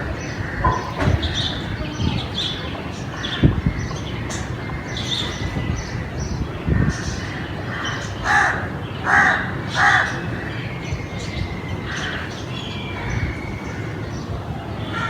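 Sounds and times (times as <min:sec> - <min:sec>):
crows cawing: 0:06.8 - 0:10.5, 0:11.9 - 0:12.4.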